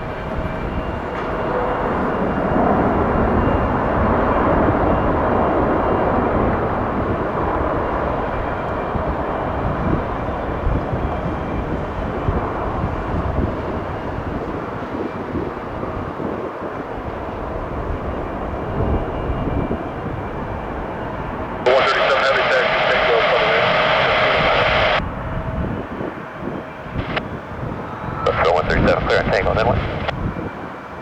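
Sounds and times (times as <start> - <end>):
jet airliner engines roaring: 0.0 - 31.0.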